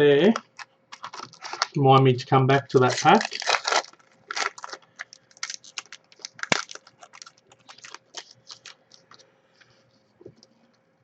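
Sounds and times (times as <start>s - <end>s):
foil pack crinkling: 0.3s - 1.8s, 2.5s - 9.3s.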